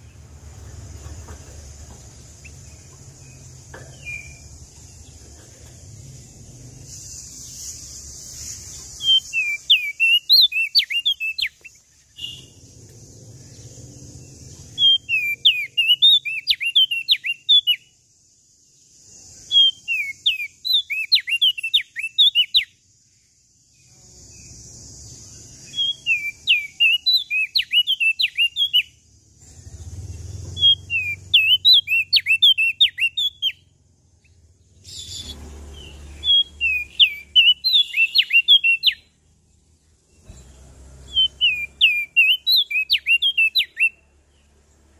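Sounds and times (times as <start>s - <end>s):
steady hiss: 0.0s - 9.8s
bird singing sweeping chirps: 0.0s - 44.9s.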